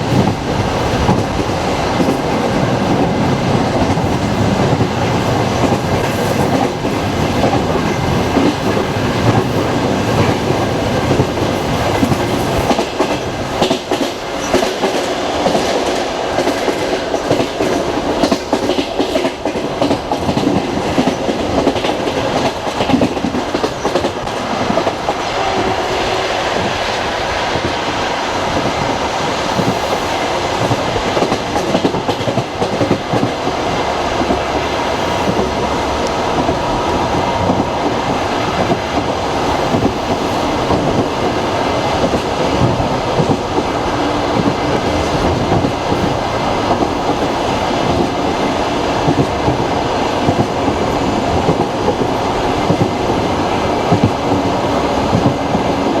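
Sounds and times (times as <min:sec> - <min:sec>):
train running gear rumble: 0:00.0 - 0:56.0.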